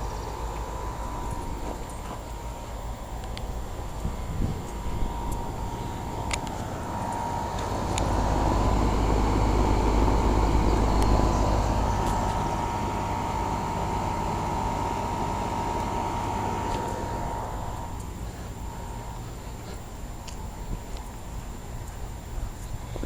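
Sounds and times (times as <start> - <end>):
faint steady hum: 0.0 - 23.0
vehicle passing by: 5.8 - 13.5.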